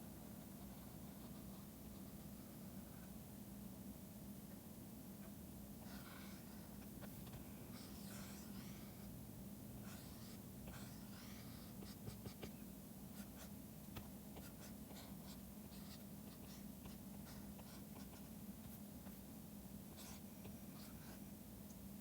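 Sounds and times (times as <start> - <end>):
steady low hum: 0.0 - 22.0
stylus scratching on tablet: 5.9 - 9.1, 9.8 - 12.6, 14.4 - 18.3.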